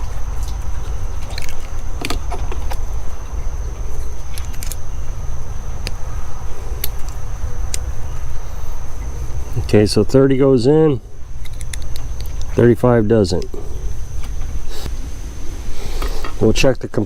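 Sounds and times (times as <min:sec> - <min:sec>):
steady low rumble: 0:00.0 - 0:17.0
small metal clicks: 0:03.8 - 0:04.8, 0:11.4 - 0:12.6.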